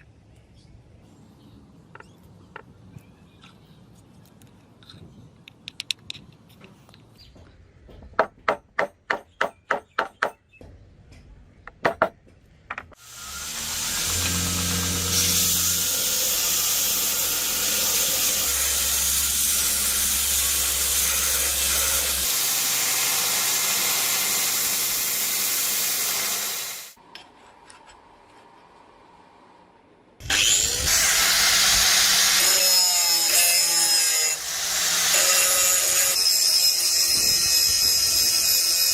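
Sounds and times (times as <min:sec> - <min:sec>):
power tool grinding steel: 0:13.0 - 0:27.0, 0:30.2 - 0:38.9.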